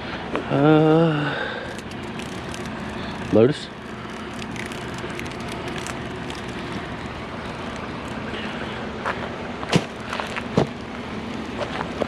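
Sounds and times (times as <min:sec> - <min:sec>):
outdoor background rumble: 0:00.0 - 0:12.0.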